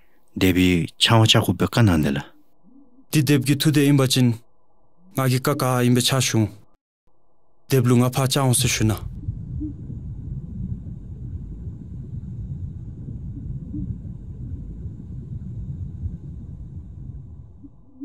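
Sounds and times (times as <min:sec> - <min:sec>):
low rumbling background: 0:07.9 - 0:18.0.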